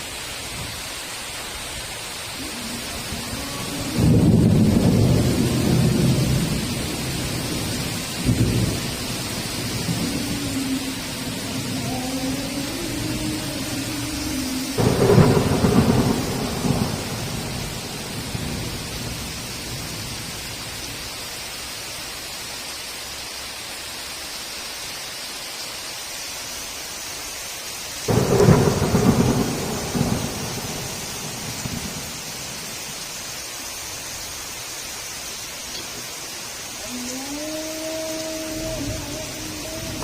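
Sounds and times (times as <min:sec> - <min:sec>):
heavy rain: 0:00.0 - 0:40.0
thunder claps rumbling: 0:02.4 - 0:20.4, 0:28.1 - 0:32.8, 0:38.5 - 0:40.0.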